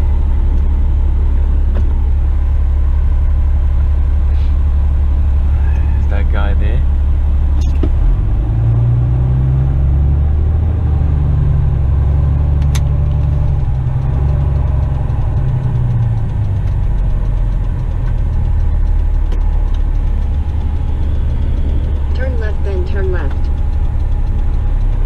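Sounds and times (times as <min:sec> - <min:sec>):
diesel engine running: 0:00.0 - 0:25.0
sharp click: 0:07.6 - 0:08.0, 0:12.6 - 0:13.3.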